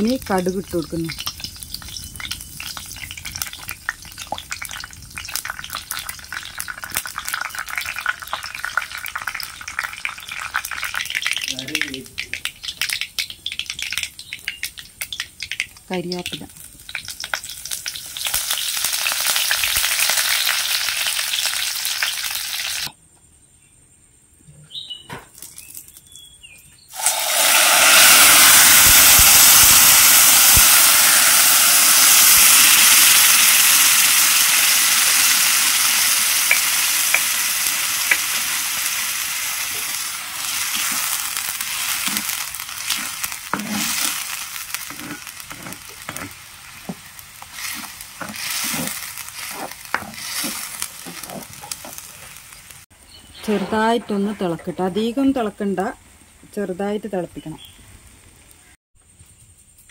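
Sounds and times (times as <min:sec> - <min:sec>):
leaves sizzling in hot oil: 0:00.0 - 0:22.9, 0:26.9 - 0:53.6
paste poured into hot oil sizzling: 0:00.0 - 0:22.9, 0:26.9 - 0:52.8
spoon stirring mixture: 0:39.7 - 0:52.3.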